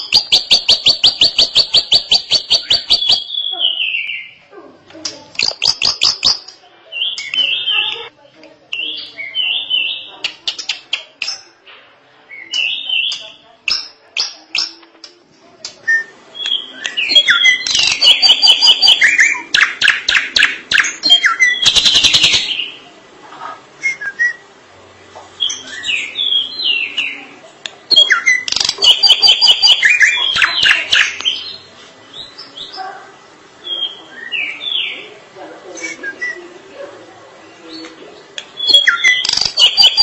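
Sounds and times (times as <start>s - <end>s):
bird singing whistled song: 0.0s - 4.4s, 5.4s - 7.8s, 8.7s - 10.7s, 12.3s - 14.8s, 15.8s - 22.8s, 23.8s - 24.4s, 25.4s - 27.2s, 27.9s - 32.8s, 33.6s - 35.0s, 35.8s - 36.4s, 38.6s - 40.0s.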